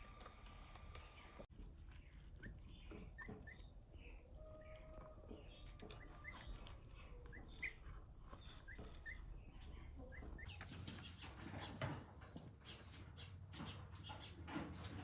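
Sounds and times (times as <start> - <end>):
crackly rustling: 0.0 - 15.0
small animal chirping: 2.0 - 11.2.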